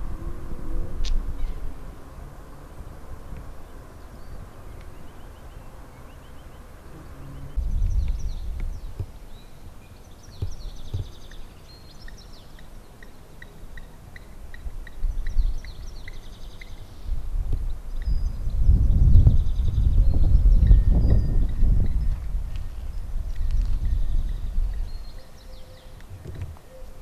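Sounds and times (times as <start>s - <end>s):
small birds singing: 0.7s - 27.0s
wind on microphone: 7.5s - 9.4s, 17.0s - 25.2s.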